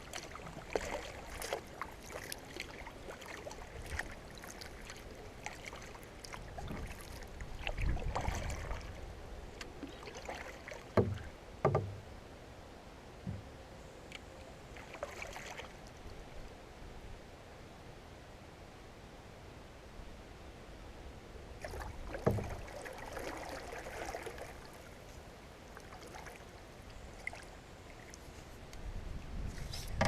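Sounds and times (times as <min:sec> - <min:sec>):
knocks and scraping on canoe: 0:09.6 - 0:12.1, 0:13.2 - 0:13.6, 0:22.1 - 0:22.7, 0:29.4 - 0:30.0.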